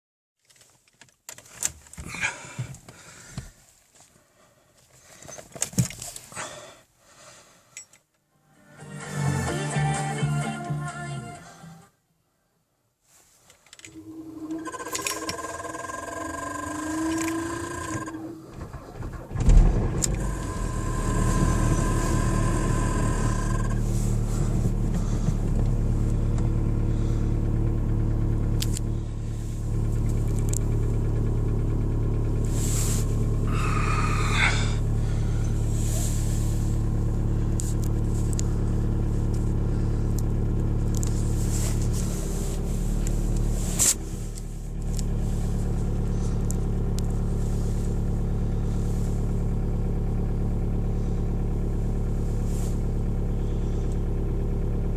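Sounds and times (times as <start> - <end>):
starter motor whine: 13.8 - 54.9
diesel engine clattering idle: 14.5 - 54.9.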